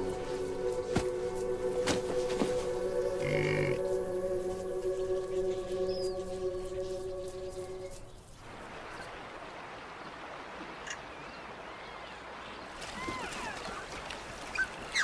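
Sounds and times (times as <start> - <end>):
flowing water: 5.4 - 15.0.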